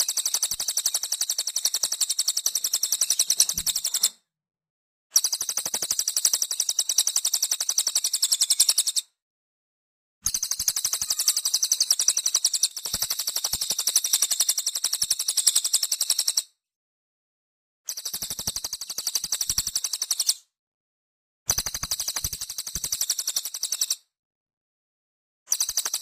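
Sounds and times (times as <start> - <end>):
bird trilling: 10.8 - 12.6.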